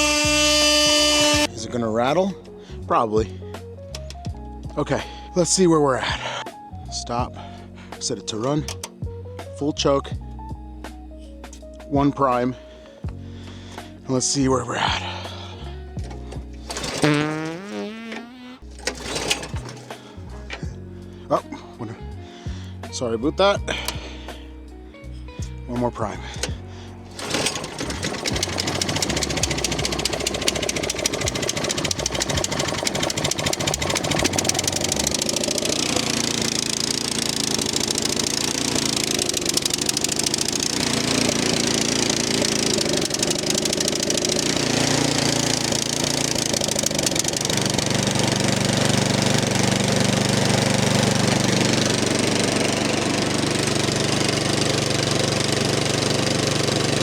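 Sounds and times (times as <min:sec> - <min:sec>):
snow blower engine running: 0:00.0 - 0:01.5, 0:16.1 - 0:17.5, 0:18.7 - 0:20.7, 0:26.4 - 0:57.0.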